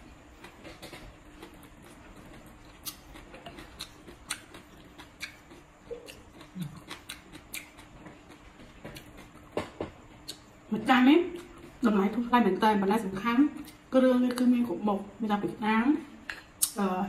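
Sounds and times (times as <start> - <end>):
crisp chewing crunches: 0.3 - 9.5.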